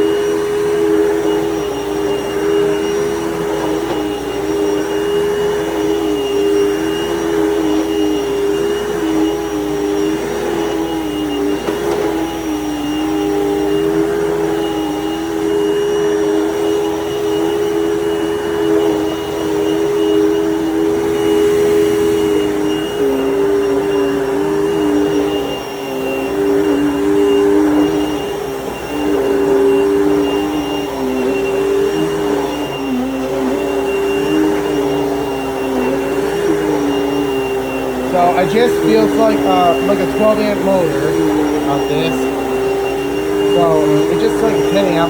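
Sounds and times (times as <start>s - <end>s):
vacuum cleaner running: 0.0s - 45.0s.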